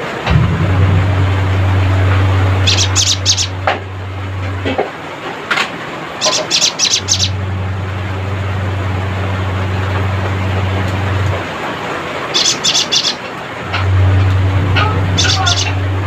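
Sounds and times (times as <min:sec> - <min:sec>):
steady low hum: 0:00.0 - 0:12.3, 0:13.4 - 0:16.0
bird churring chatter: 0:06.2 - 0:07.3, 0:12.3 - 0:13.2, 0:15.2 - 0:15.8.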